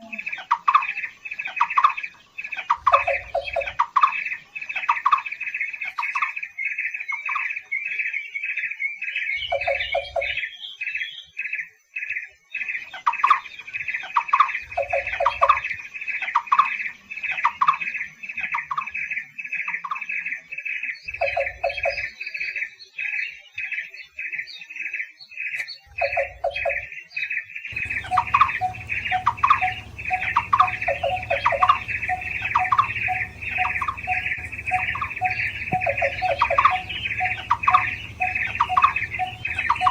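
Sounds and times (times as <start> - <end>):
birds calling repeated notes: 0.0 - 6.4, 9.4 - 10.6, 14.6 - 15.7, 27.7 - 39.9
background hiss and hum: 27.7 - 39.9.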